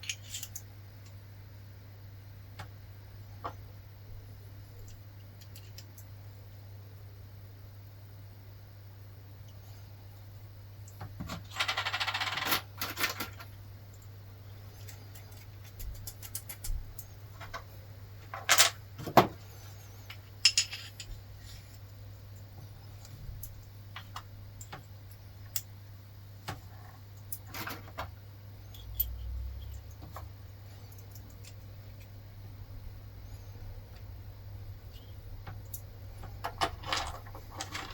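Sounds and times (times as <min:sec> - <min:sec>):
metal parts and tools clinking: 0:00.0 - 0:00.7, 0:20.1 - 0:21.2, 0:28.6 - 0:30.3, 0:36.5 - 0:37.9.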